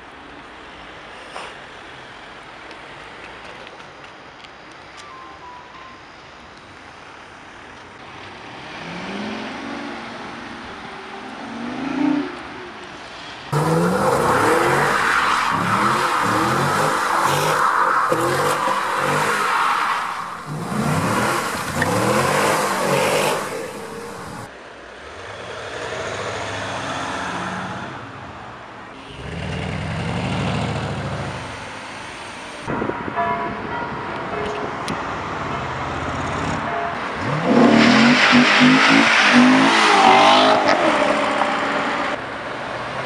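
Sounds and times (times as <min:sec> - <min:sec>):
car engine revving hard: 0:08.5 - 0:10.6, 0:13.5 - 0:27.9, 0:37.1 - 0:42.2.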